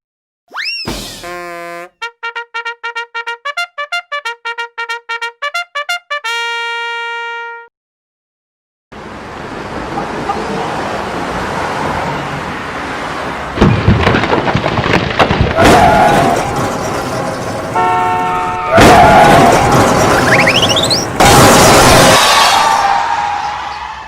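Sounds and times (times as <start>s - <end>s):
loud cartoon crashes: 0.6s - 1.7s, 13.6s - 17.8s, 18.7s - 23.5s
horn-like tone: 1.2s - 7.7s, 17.8s - 18.8s.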